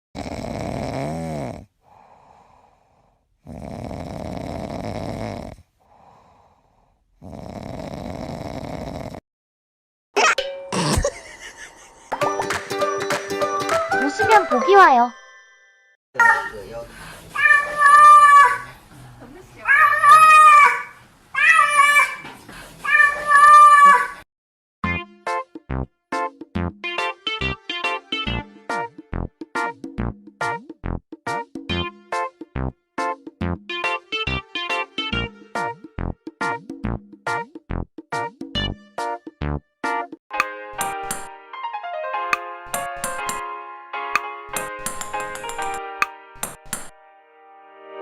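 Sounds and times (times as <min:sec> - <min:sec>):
pet snoring: 0:00.2 - 0:09.2
quiet breath out: 0:01.8 - 0:03.3, 0:05.5 - 0:07.1, 0:16.9 - 0:17.4, 0:22.4 - 0:22.8
cat meowing: 0:17.4 - 0:18.7, 0:19.6 - 0:24.2.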